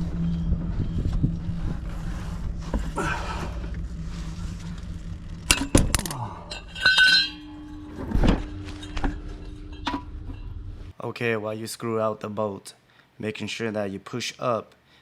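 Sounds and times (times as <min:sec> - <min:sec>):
low steady hum: 0:00.0 - 0:11.0
metal hand tools clinking: 0:05.5 - 0:07.9.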